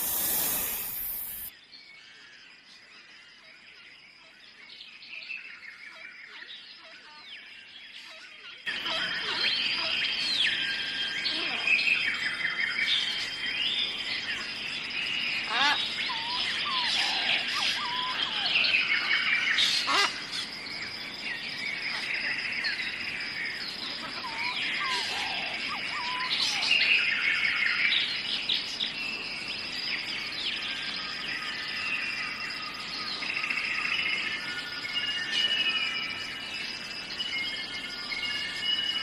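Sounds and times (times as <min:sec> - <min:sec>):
birds chirping and whistling: 0:00.0 - 0:01.5, 0:11.9 - 0:29.0, 0:30.5 - 0:39.0
steady high-pitched whine: 0:00.0 - 0:01.5.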